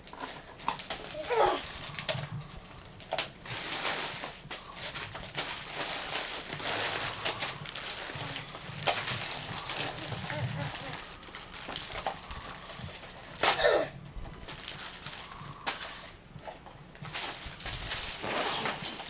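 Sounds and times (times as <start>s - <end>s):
wrapping paper tearing: 3.0s - 13.6s.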